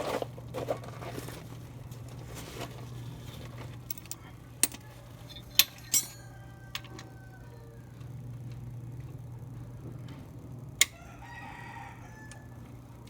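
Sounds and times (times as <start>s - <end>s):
steady low hum: 0.0s - 13.0s
metal hand tools clinking: 3.9s - 7.0s.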